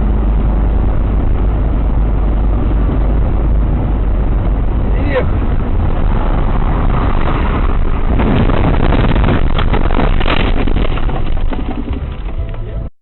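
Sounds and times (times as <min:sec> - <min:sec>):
vehicle engine and road rumble: 0:00.0 - 0:12.9
crackles and rattles: 0:05.4 - 0:12.9.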